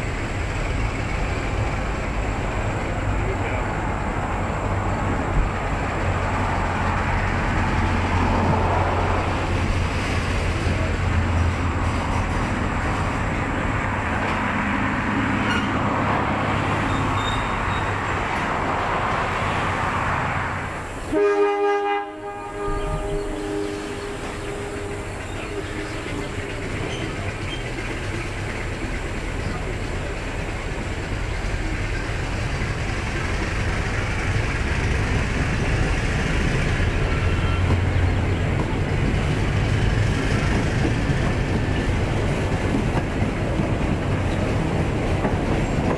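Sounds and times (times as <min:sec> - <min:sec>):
diesel locomotive engine drone: 0:00.0 - 0:45.9
locomotive air horn: 0:15.4 - 0:16.0, 0:21.1 - 0:26.5.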